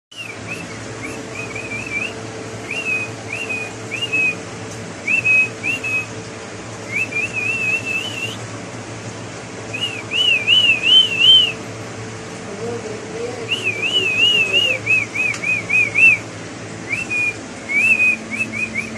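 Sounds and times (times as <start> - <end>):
parrot whistling: 0.1 - 4.4, 5.0 - 6.1, 6.9 - 8.4, 9.7 - 11.6, 13.5 - 18.9.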